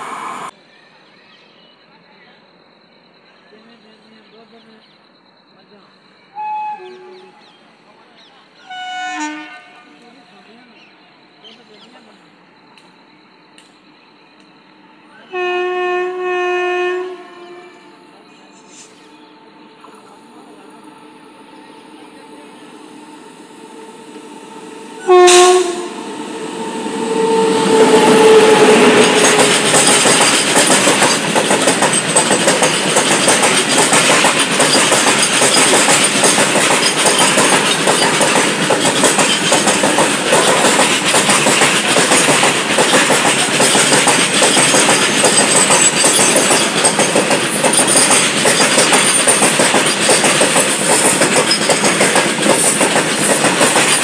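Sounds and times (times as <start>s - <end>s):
locomotive horn blasts: 6.3s - 7.4s, 8.6s - 10.0s, 15.2s - 18.2s, 24.9s - 29.4s
train wheels clattering over rails: 27.7s - 54.0s.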